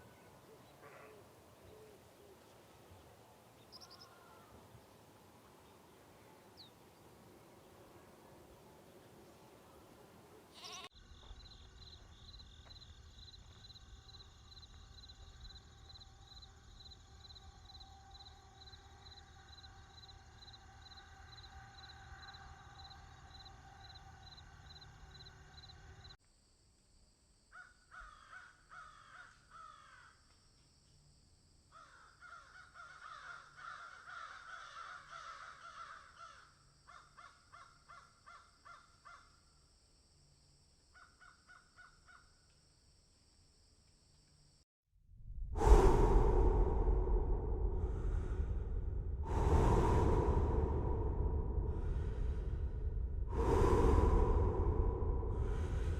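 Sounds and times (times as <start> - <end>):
faint high chirping: 3.6 - 4.5
low rumble: 45.0 - 55.9.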